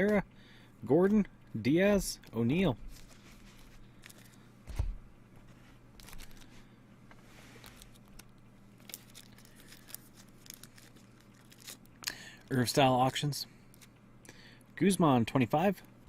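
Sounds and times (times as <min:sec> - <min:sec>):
faint hum: 0:00.0 - 0:16.0
wrapper tearing and crinkling: 0:07.7 - 0:11.9.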